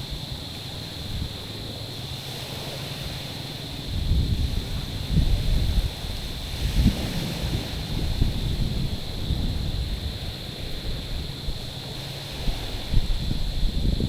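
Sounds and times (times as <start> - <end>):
wind buffeting microphone: 3.8 - 14.0.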